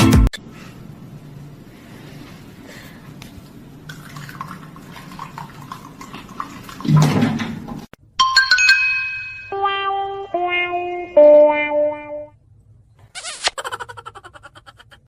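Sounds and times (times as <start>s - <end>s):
falling musical notes: 9.5s - 12.4s.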